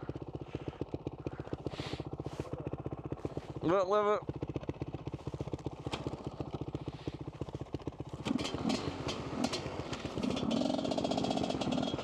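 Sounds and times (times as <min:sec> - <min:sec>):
dirt bike engine revving: 0:08.2 - 0:12.0.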